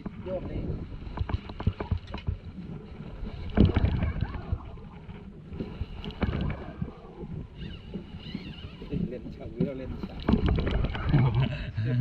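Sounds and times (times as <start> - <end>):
water splashes: 0.0 - 11.5
boat engine rumble: 0.0 - 12.0.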